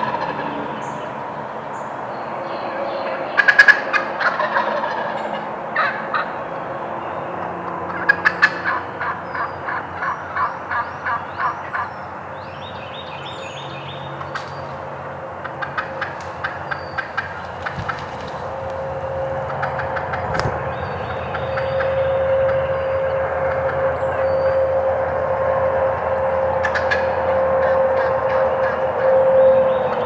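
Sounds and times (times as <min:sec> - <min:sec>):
songbirds chirping: 0:10.1 - 0:24.8
wild turkeys gobbling: 0:14.2 - 0:22.0.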